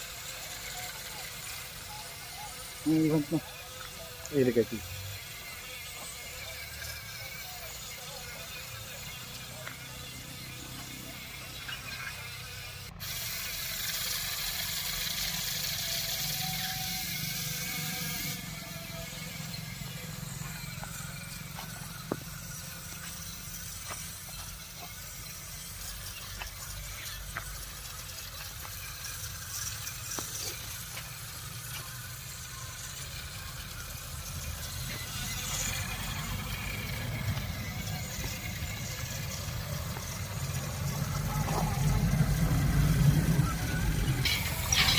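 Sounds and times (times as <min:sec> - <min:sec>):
tractor diesel engine rumbling: 0:09.5 - 0:44.9
loud hiss: 0:13.0 - 0:27.8.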